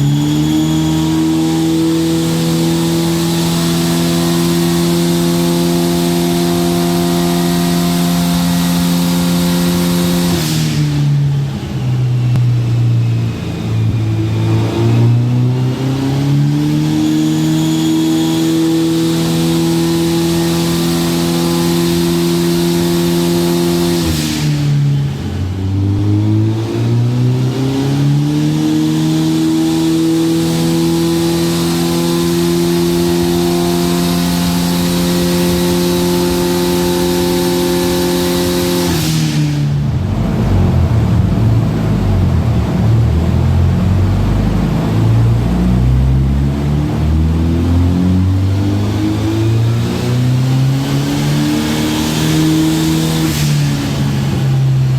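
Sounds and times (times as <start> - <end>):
car engine revving under load: 0.0 - 54.9.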